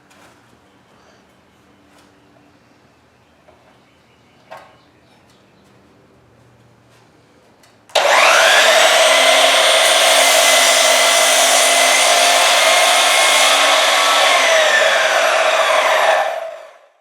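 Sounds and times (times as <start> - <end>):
miter saw running: 8.0 - 16.9.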